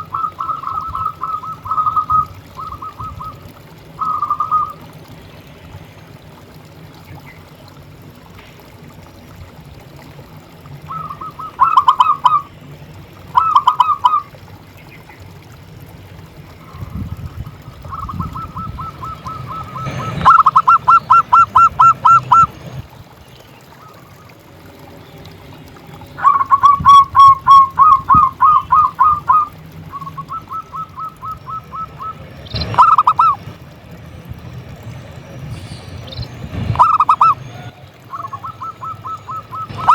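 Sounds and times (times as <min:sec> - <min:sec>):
dove cooing: 0:00.0 - 0:05.0, 0:10.8 - 0:12.5, 0:13.2 - 0:14.4, 0:16.6 - 0:22.6, 0:26.2 - 0:33.6, 0:36.5 - 0:39.9
low hum: 0:00.0 - 0:39.9.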